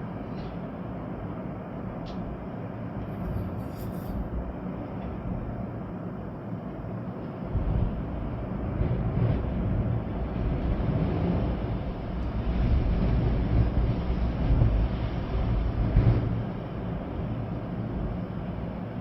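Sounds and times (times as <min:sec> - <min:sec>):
rain: 0:04.2 - 0:19.0
wind buffeting microphone: 0:07.5 - 0:19.0.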